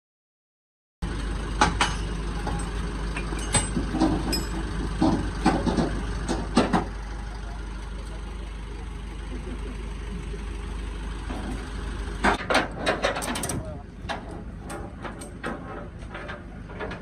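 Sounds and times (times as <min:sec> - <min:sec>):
low mechanical hum: 0:01.0 - 0:17.0
sharp metallic knocks and clanks: 0:01.6 - 0:07.0, 0:11.2 - 0:17.0.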